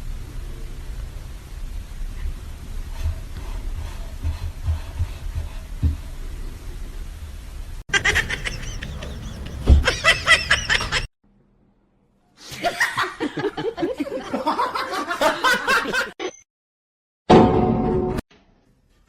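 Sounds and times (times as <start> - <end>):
people laughing: 7.9 - 11.1, 12.5 - 16.2.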